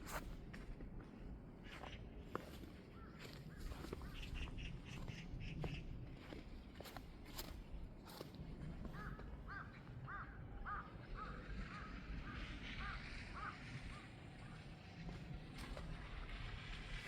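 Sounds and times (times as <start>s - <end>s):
bird calls: 8.9s - 14.6s.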